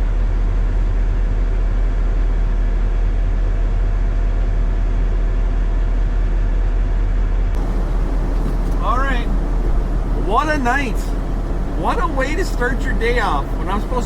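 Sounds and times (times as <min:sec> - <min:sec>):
diesel truck engine idling: 0:07.6 - 0:14.0.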